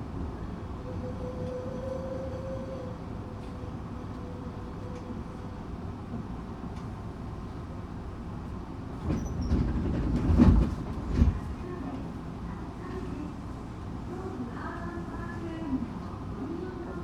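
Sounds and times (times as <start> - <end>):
train clacks and rattles: 0.0 - 17.0
train rumbling: 0.0 - 17.0.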